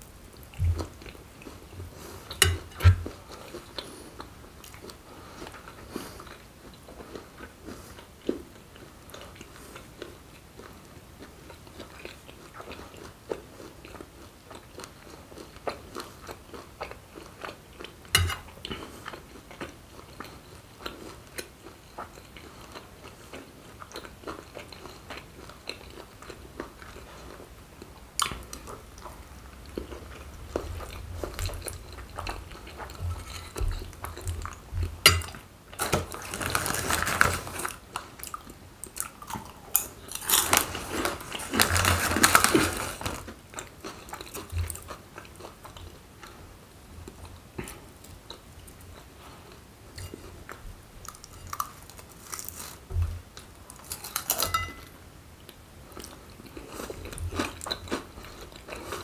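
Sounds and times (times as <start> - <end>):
plastic bag crinkling: 35.9 - 37.8, 40.2 - 43.3.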